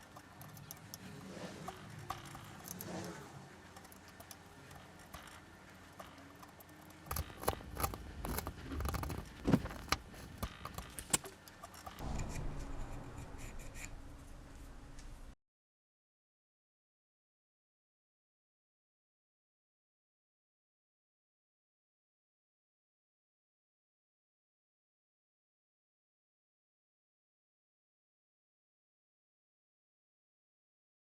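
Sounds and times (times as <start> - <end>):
chisel scraping wood: 1.0 - 12.5.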